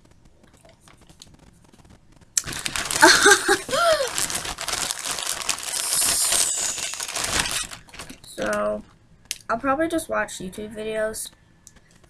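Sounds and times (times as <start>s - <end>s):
plastic bag crinkling: 0.4s - 9.5s.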